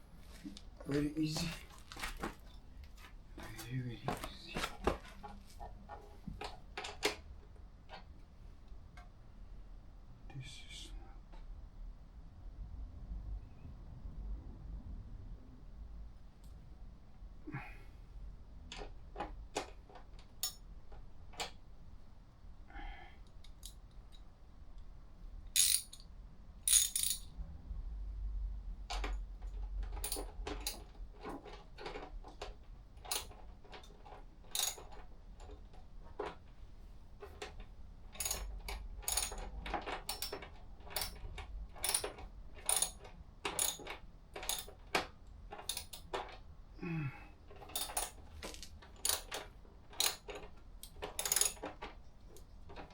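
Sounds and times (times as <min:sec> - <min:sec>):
hand tools and hardware clinking: 0:00.2 - 0:07.1, 0:25.6 - 0:26.0, 0:26.7 - 0:27.2, 0:33.1 - 0:35.0, 0:37.2 - 0:44.8, 0:47.6 - 0:52.9.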